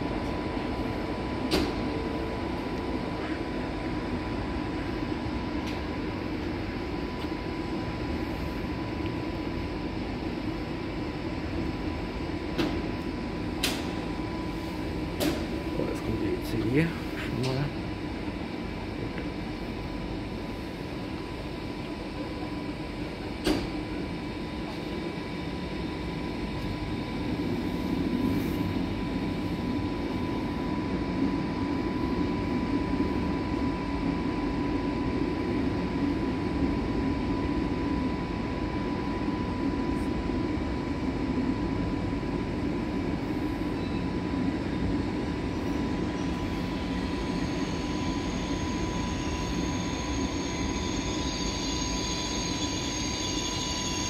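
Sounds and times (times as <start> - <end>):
steady whine: 0.0 - 54.0
train running gear rumble: 0.0 - 54.0
high wheel squeal: 46.9 - 54.0.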